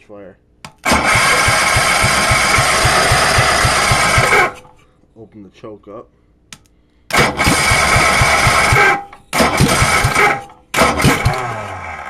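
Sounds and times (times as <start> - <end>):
engine sputtering not catching: 0.7 - 4.7, 7.1 - 12.0.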